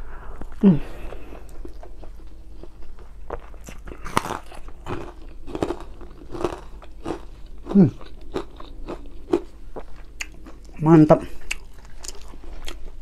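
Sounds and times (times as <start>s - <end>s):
falling hum of voice: 0.0s - 1.5s
person chewing: 0.2s - 13.0s
crunching: 1.5s - 10.8s.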